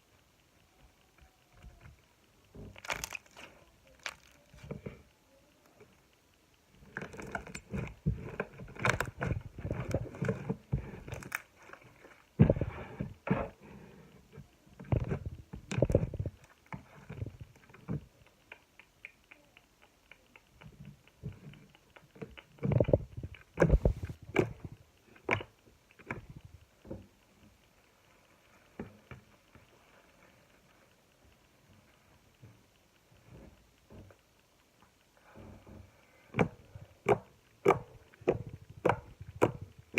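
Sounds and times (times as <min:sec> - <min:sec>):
slime squished by hand: 0:02.7 - 0:04.7.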